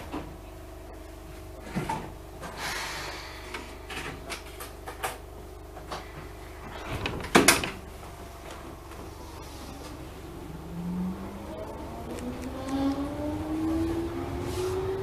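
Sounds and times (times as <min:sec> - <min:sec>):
train cab low hum: 0:00.0 - 0:15.0.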